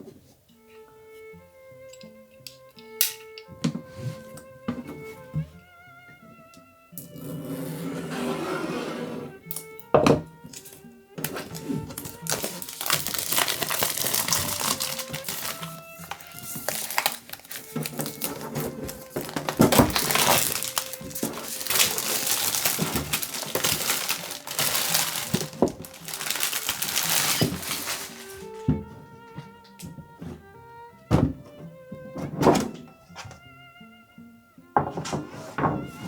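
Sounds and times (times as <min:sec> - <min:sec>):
soft background music: 0:00.0 - 0:36.0
packaging crinkling and rustling: 0:10.6 - 0:28.7.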